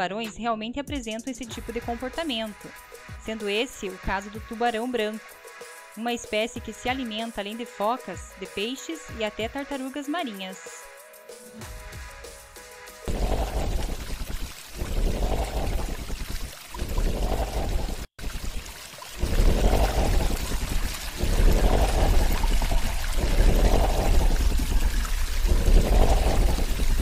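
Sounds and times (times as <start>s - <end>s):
underwater rushing and bubbling: 13.1s - 27.0s.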